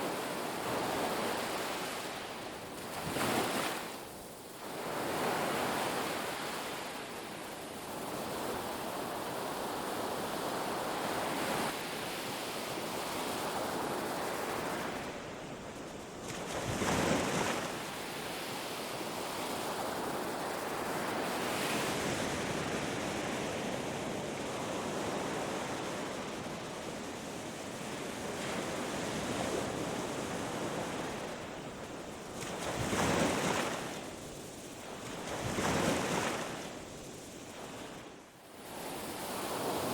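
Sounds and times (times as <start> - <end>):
ocean surf washing on beach: 0.0 - 39.9.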